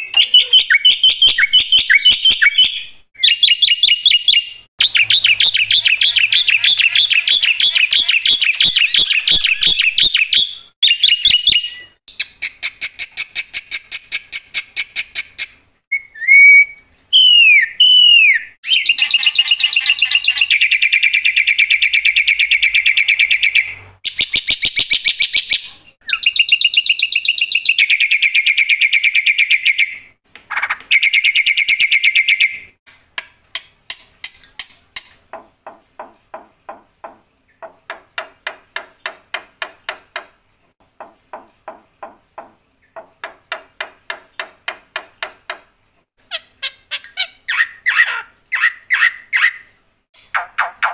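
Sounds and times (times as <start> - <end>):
bird singing with whistles and trills: 0.0 - 13.0, 15.9 - 30.0.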